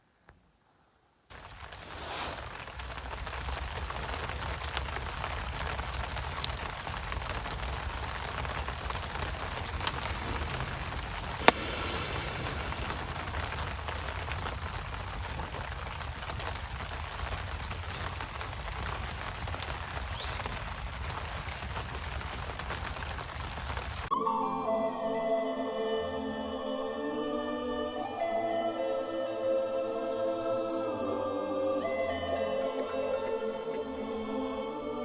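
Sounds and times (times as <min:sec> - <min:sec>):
rain falling: 0:01.3 - 0:24.1
sharp cracks: 0:01.3 - 0:24.1.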